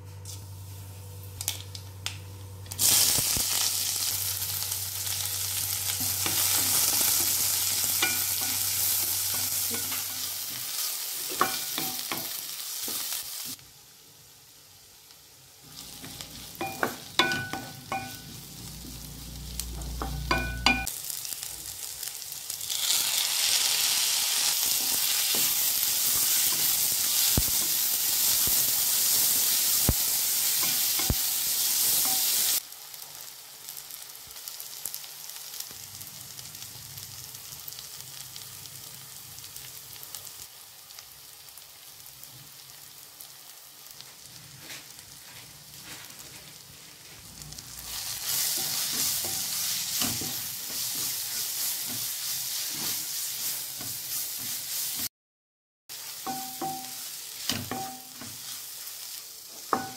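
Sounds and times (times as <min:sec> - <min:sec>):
onions sizzling in hot oil: 0:02.6 - 0:55.1, 0:55.9 - 0:59.9
spoon clinking against pan: 0:16.6 - 0:18.2, 0:20.0 - 0:20.9, 0:56.2 - 0:58.3.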